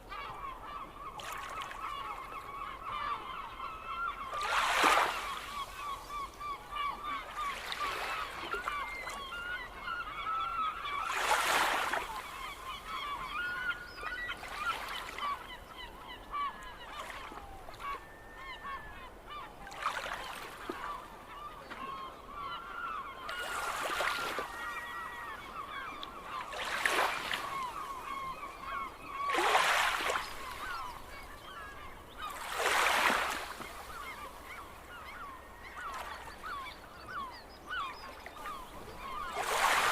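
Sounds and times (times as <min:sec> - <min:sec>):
gulls calling: 0:00.0 - 0:39.9
waves breaking on shore: 0:04.3 - 0:09.2, 0:10.8 - 0:13.4, 0:23.2 - 0:36.6, 0:38.4 - 0:39.9.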